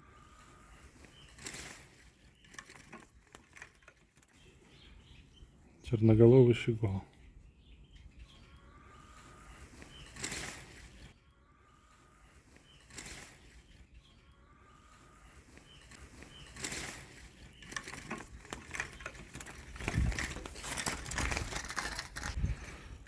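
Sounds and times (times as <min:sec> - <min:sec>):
wing flutters: 0:00.2 - 0:04.7, 0:09.1 - 0:11.1, 0:12.4 - 0:13.9, 0:14.9 - 0:23.0
rustling clicks and scuffs: 0:09.7 - 0:11.1, 0:15.5 - 0:23.0.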